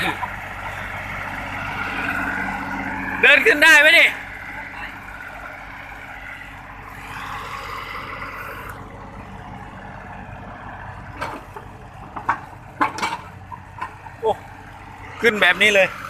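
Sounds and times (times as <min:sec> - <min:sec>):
excavator diesel engine running: 0:00.0 - 0:16.0
metal track clanks: 0:11.2 - 0:14.1.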